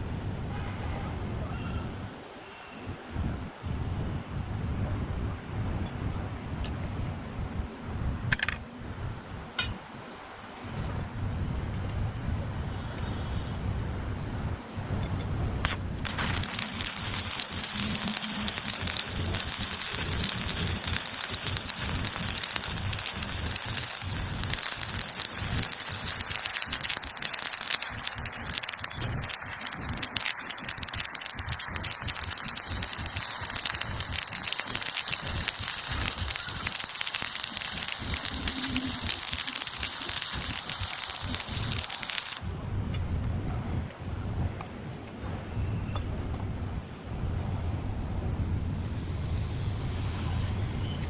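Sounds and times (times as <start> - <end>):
welding arc crackling: 15.6 - 42.4.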